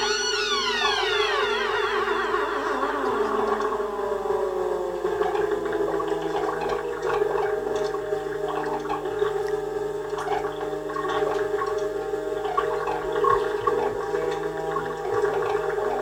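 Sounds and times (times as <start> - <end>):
tone sliding down in pitch: 0.0 - 6.0
bubbling crackling electronic texture: 0.0 - 16.0
synthesizer drones: 0.0 - 16.0.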